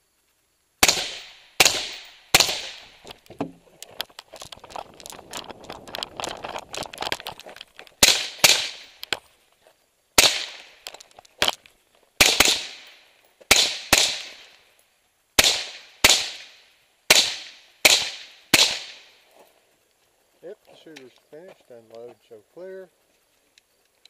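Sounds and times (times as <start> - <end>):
rifle shots echoing: 0.8 - 3.1, 8.0 - 9.0, 10.2 - 11.0, 12.2 - 14.6, 15.4 - 19.2
small clicks and rattles: 3.0 - 8.0, 10.8 - 11.8.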